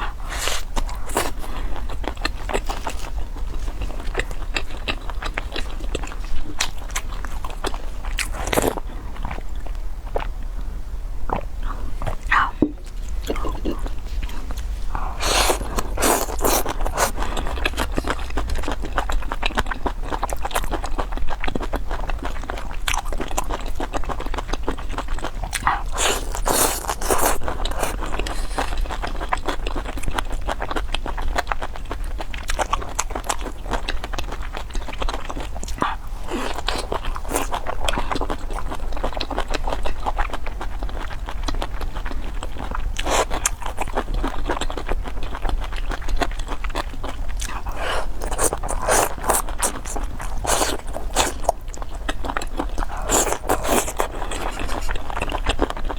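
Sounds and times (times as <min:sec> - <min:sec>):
chewing with mouth clicks: 0:00.0 - 0:10.4, 0:11.3 - 0:55.9
crunching bites: 0:15.2 - 0:18.3, 0:25.5 - 0:28.9, 0:47.4 - 0:55.8.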